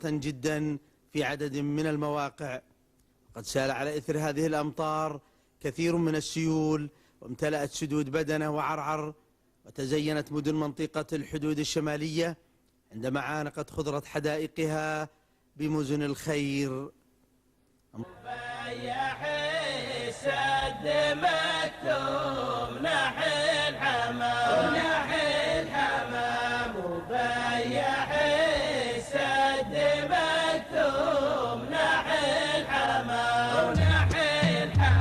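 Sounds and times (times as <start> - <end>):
chanted melodic vocal song: 18.0 - 35.0.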